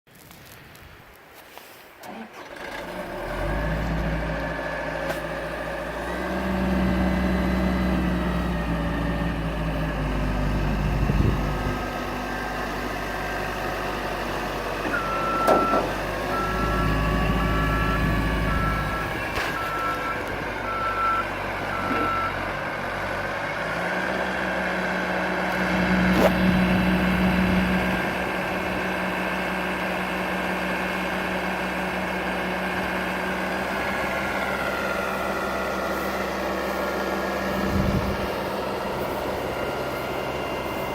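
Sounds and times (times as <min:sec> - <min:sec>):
diesel engine running: 0:02.0 - 0:40.9
reversing alarm beeping: 0:14.8 - 0:22.5.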